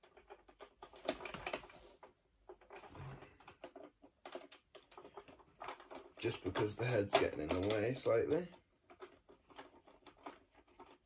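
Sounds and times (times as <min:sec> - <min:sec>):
hands handling plastic parts: 0:00.0 - 0:11.0.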